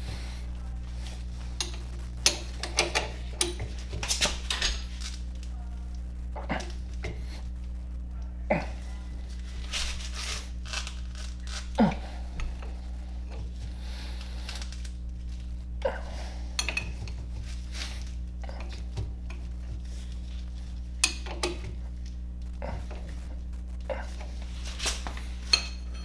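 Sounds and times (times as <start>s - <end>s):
steady low hum: 0.0s - 26.0s
metal tools clinking: 1.5s - 5.5s, 24.5s - 26.0s.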